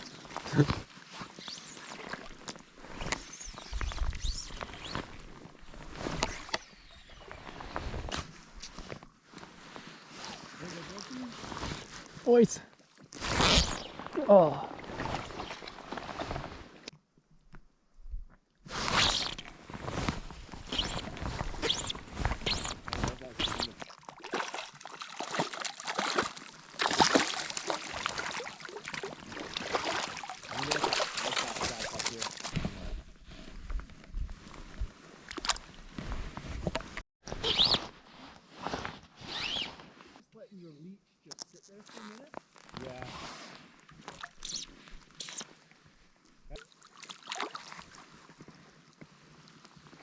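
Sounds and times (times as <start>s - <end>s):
water splashing and sloshing: 18.3s - 37.0s, 43.5s - 50.0s.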